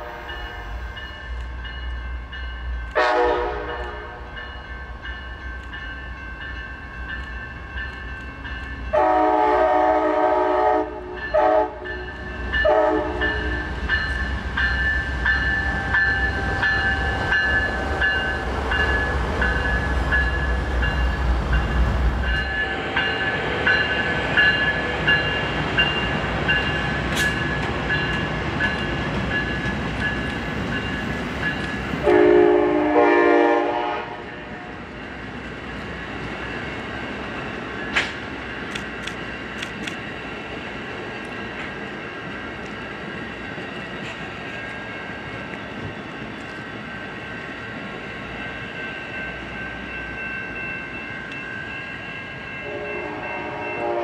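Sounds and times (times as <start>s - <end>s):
train horn blowing: 0.0s - 0.8s, 2.9s - 4.4s, 8.9s - 13.7s, 32.0s - 34.7s, 52.6s - 54.0s
train wheels clattering on rail: 11.0s - 32.7s, 34.3s - 48.4s
bell ringing: 11.2s - 31.7s.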